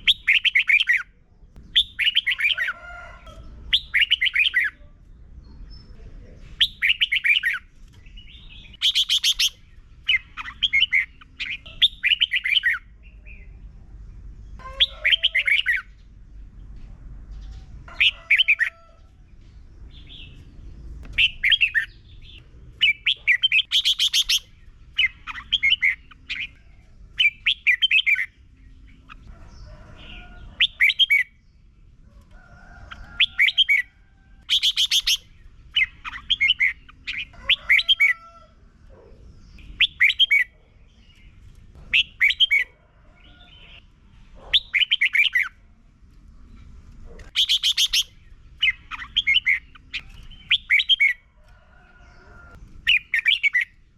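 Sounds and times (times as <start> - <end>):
bird warbling song: 0.0 - 6.0, 6.6 - 13.7, 14.4 - 16.2, 19.9 - 31.7, 32.8 - 45.7, 46.4 - 53.9.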